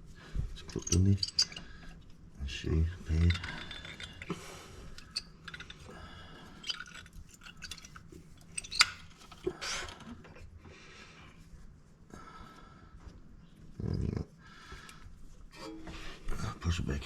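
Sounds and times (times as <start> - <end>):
metallic clicks and scrapes: 0.6 - 2.0, 3.1 - 10.1.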